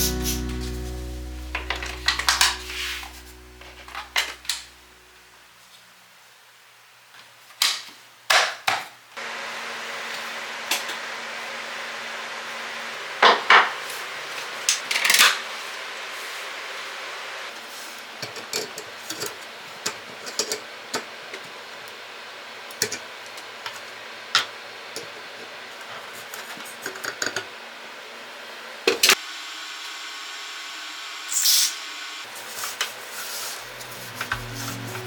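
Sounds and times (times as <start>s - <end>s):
steady hiss: 0.0s - 5.1s.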